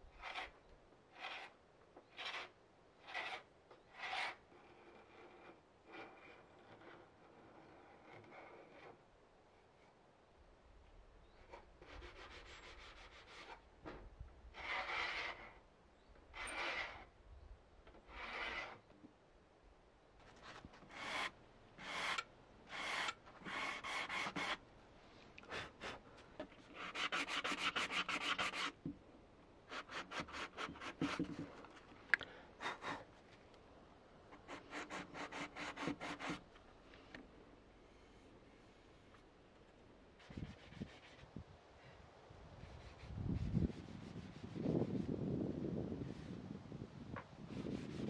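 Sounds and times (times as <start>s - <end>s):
paint scraper scratching wood: 0.2s - 9.0s, 14.6s - 15.6s, 16.4s - 17.1s, 18.0s - 18.9s, 20.4s - 24.6s, 26.6s - 29.0s, 29.7s - 31.6s, 34.4s - 36.5s.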